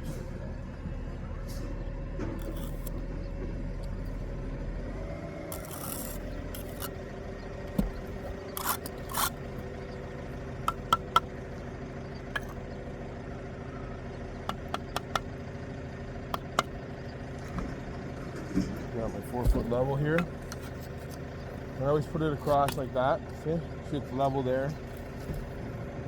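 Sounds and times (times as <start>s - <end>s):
trowel scraping mortar: 2.4s - 3.0s, 5.5s - 7.0s, 7.8s - 9.6s, 10.7s - 11.3s, 12.4s - 12.6s, 14.5s - 15.2s, 16.3s - 16.8s, 19.4s - 22.9s
steady hum: 5.5s - 15.4s, 16.0s - 18.0s
bricks tapped into mortar: 7.8s - 9.3s, 10.7s - 11.3s, 12.4s - 12.6s, 14.5s - 15.2s, 16.4s - 16.8s.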